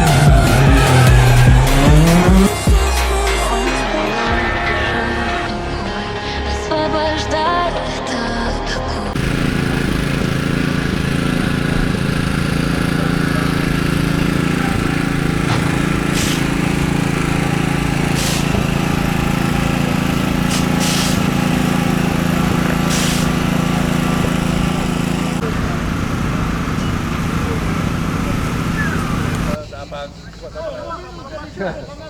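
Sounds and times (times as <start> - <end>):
car engine running steadily: 0.0 - 2.8, 9.1 - 29.6
short hisses: 14.8 - 22.0, 22.8 - 24.1.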